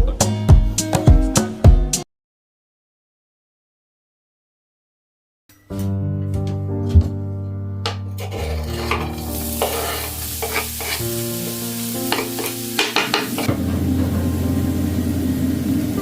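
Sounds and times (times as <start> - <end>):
soft background music: 5.5 - 16.0
food sizzling in a frying pan: 8.2 - 16.0.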